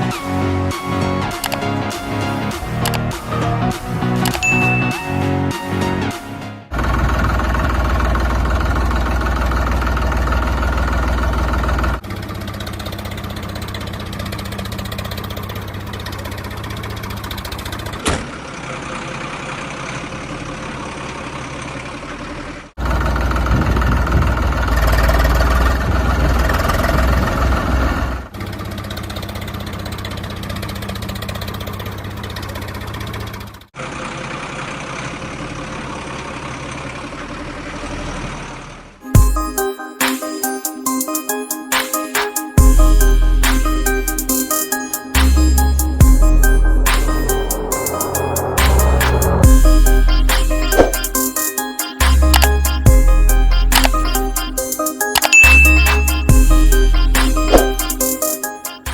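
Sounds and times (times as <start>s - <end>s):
tractor engine running: 0.4s - 6.0s, 6.6s - 39.0s, 45.1s - 58.2s
sharp click: 4.2s - 4.6s, 50.3s - 51.2s, 52.0s - 52.8s, 53.7s - 54.2s, 55.1s - 56.2s.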